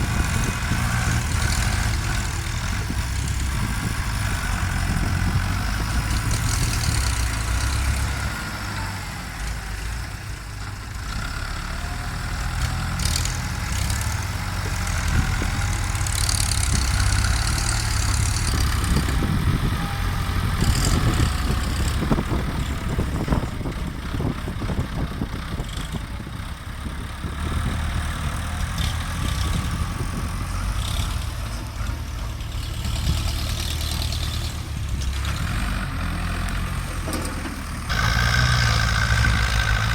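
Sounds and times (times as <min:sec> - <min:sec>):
tractor engines rumbling: 0:00.0 - 0:39.9
knocks and scrapes: 0:31.0 - 0:39.9.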